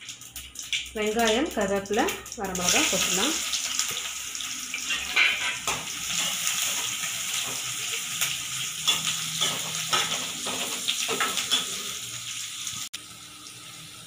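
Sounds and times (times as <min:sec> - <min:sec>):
onions sizzling in hot oil: 0:00.0 - 0:14.0
ladle scraping a pan: 0:04.8 - 0:07.6.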